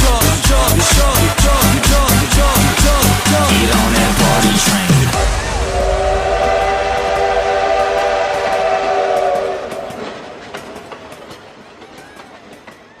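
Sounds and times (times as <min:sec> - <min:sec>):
rolling train noise: 0:00.0 - 0:13.0
train horn chord: 0:05.5 - 0:10.1.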